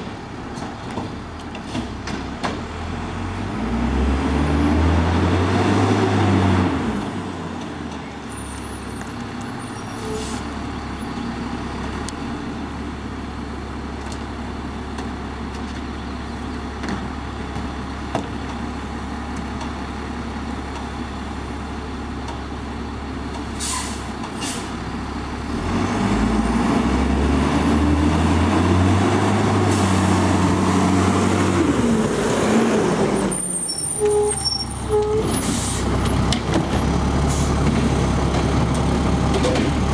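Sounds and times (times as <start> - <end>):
garbage truck diesel engine: 0.0 - 39.9
engine whine: 25.4 - 39.9.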